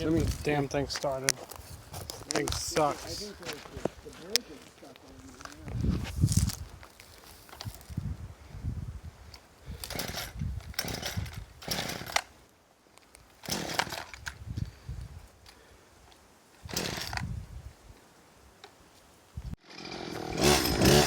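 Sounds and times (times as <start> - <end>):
chainsaw engine firing in bursts: 9.8 - 12.3, 13.4 - 14.1, 16.7 - 17.2, 19.6 - 21.0.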